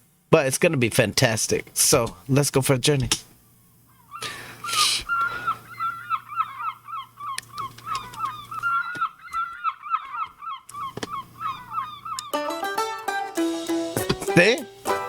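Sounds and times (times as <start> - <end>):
birds honking: 3.4 - 15.0
sharp clicks: 7.3 - 11.2.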